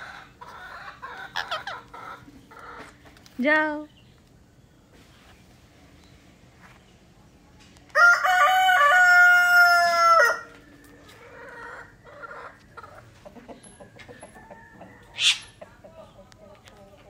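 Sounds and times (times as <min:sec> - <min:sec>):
rooster crowing: 0:08.0 - 0:10.6.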